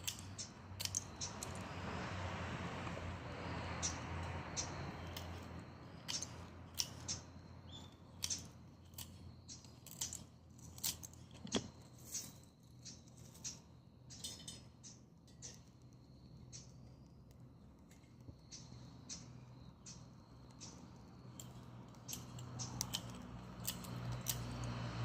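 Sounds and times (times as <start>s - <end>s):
branches crackling and popping: 3.9s - 12.4s.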